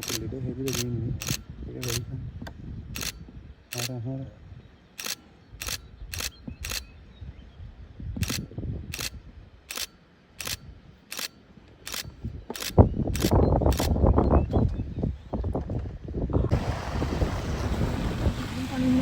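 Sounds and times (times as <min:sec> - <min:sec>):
camera shutter clicks: 0:00.0 - 0:02.0, 0:03.0 - 0:03.9, 0:05.0 - 0:06.9, 0:08.2 - 0:14.0.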